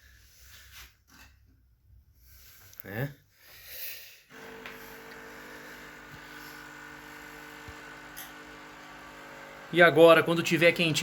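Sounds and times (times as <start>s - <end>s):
electrical appliance humming: 4.3s - 11.0s.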